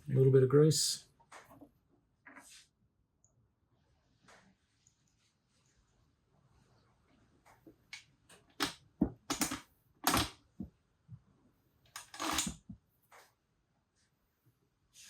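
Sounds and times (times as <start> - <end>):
clicks and knocks of metal parts: 7.9 - 10.4, 11.9 - 12.8.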